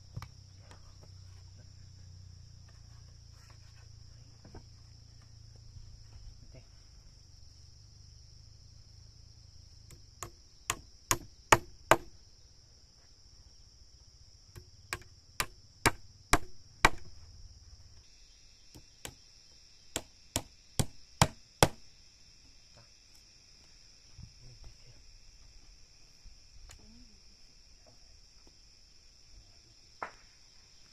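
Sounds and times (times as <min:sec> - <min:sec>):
high insect buzz: 0:00.0 - 0:30.9
hand tool striking wood: 0:09.9 - 0:12.2, 0:14.6 - 0:17.1, 0:18.7 - 0:19.2, 0:19.9 - 0:21.8.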